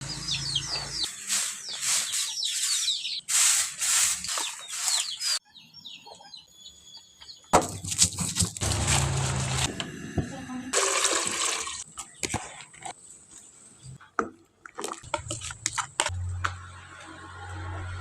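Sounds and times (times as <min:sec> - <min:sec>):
small birds chirping: 0:00.0 - 0:07.6
rustling scraping noise: 0:01.1 - 0:05.4, 0:07.8 - 0:09.7.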